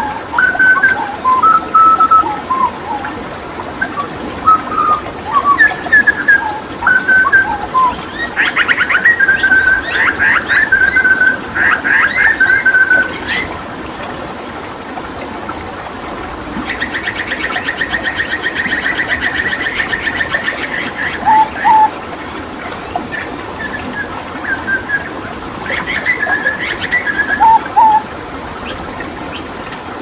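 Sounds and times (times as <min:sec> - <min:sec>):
bird singing whistled notes: 0:00.0 - 0:03.0, 0:03.8 - 0:13.4, 0:16.7 - 0:21.9, 0:23.6 - 0:25.1, 0:25.7 - 0:28.0
running water: 0:00.0 - 0:30.0.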